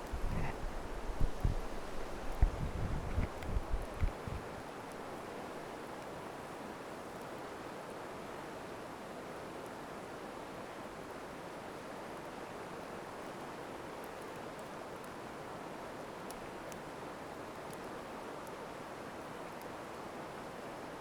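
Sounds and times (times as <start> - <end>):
faint campfire crackling: 0.0 - 7.4, 12.2 - 20.6.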